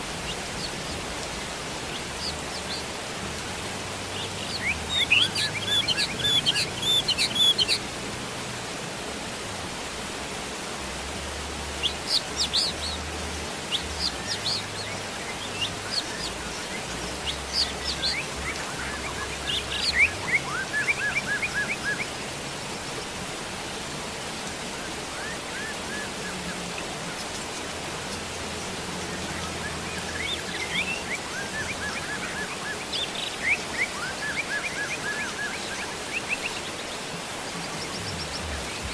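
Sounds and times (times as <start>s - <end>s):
songbirds chirping: 0.0s - 38.9s
steady rain hiss: 0.0s - 38.9s.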